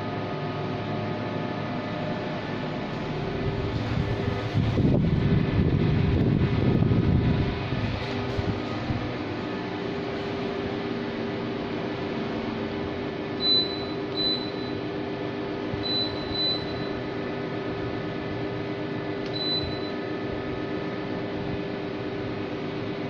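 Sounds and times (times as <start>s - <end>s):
air conditioner humming: 0.0s - 23.0s
short high beeps: 13.4s - 14.8s, 15.8s - 17.0s, 19.3s - 20.0s.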